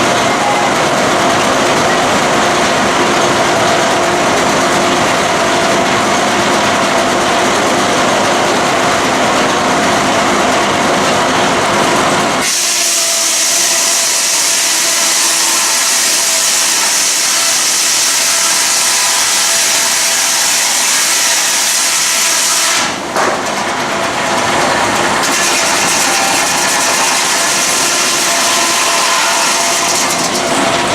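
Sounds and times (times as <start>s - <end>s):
saw whining: 12.4s - 23.0s, 24.7s - 30.9s
steam engine hissing: 12.4s - 23.0s.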